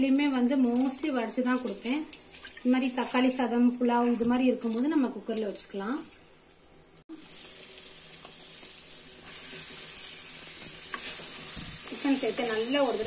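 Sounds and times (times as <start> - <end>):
chicken sizzling in hot oil: 7.1 - 13.0.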